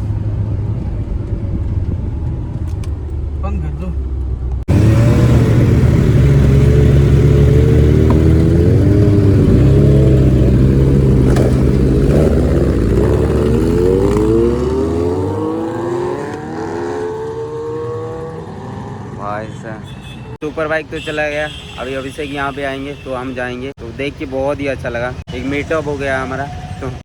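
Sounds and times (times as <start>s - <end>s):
motorcycle engines revving: 0.0s - 20.4s.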